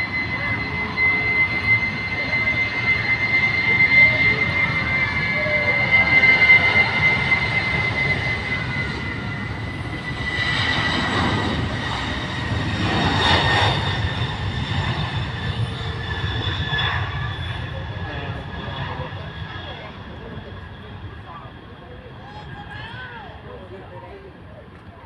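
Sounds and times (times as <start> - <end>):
jet engine rumble and whine: 0.0 - 25.0.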